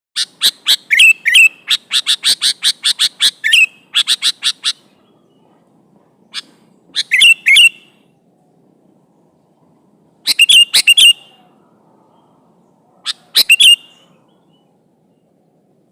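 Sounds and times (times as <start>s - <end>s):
bird whistled notes: 0.4s - 4.8s, 6.4s - 8.0s, 10.2s - 11.5s, 13.1s - 14.7s
bird singing sharp chirps: 6.3s - 8.1s, 10.2s - 15.3s.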